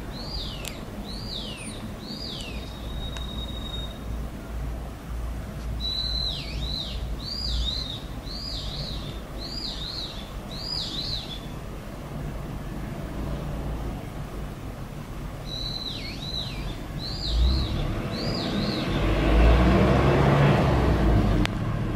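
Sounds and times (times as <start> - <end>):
road traffic: 0.0 - 21.9
bird whistling calls: 0.2 - 4.2, 5.8 - 11.6, 15.5 - 19.1.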